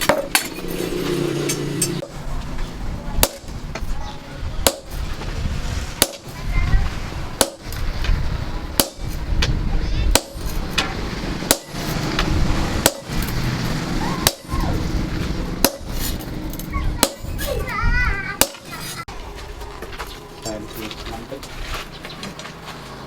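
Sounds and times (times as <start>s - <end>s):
hammer striking steel on anvil: 0.0s - 2.1s, 4.6s - 5.0s, 6.0s - 6.3s, 8.8s - 9.2s, 10.1s - 13.4s, 14.2s - 14.7s, 15.6s - 16.2s, 17.0s - 17.4s
low rumble: 0.0s - 3.8s, 6.6s - 17.0s.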